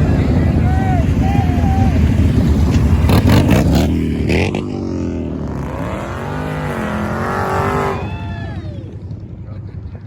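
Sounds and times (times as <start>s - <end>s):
car engine revving: 2.2s - 8.1s.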